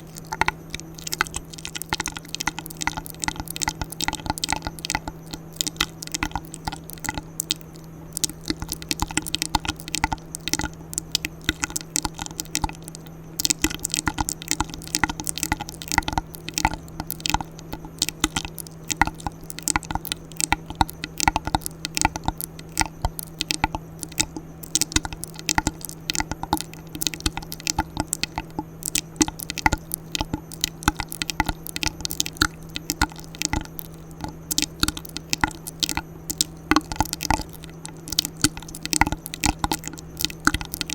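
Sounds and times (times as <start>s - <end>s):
steady low hum: 0.0s - 40.9s
wet mouth clicks and smacks: 0.0s - 40.9s.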